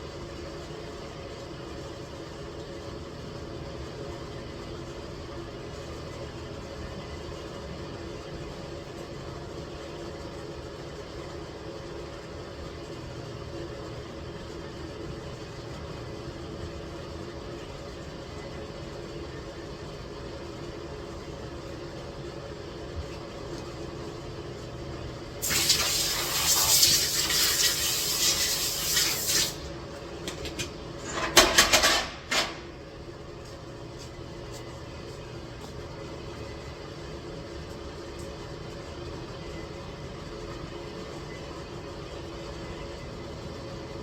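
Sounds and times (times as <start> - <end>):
low mechanical hum: 0.0 - 44.0
loud rushing hiss: 25.4 - 29.7.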